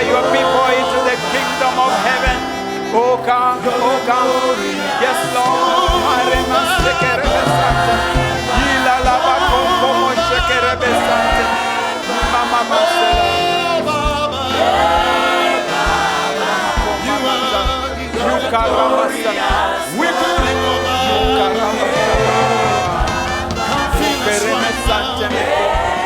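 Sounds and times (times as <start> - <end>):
held bass notes: 0.0 - 26.0
sustained keyboard chords: 0.0 - 26.0
voices singing and praying: 0.0 - 26.0
steady low beat: 5.8 - 26.0.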